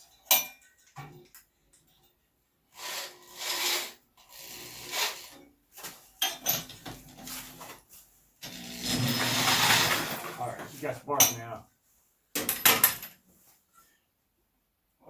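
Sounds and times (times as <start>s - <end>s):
power drill spinning engine: 2.8s - 5.4s, 8.5s - 10.1s.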